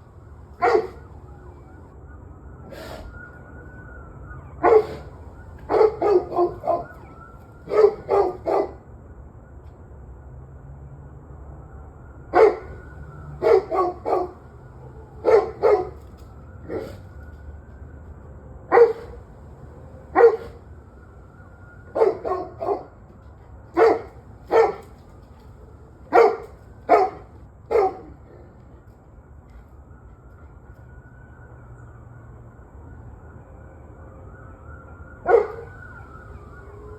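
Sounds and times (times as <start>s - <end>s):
dog barking: 0.6s - 1.1s, 4.6s - 8.8s, 12.3s - 16.0s, 16.6s - 17.0s, 18.7s - 19.2s, 20.0s - 20.6s, 21.9s - 23.0s, 23.8s - 25.0s, 26.1s - 28.2s, 35.2s - 35.8s.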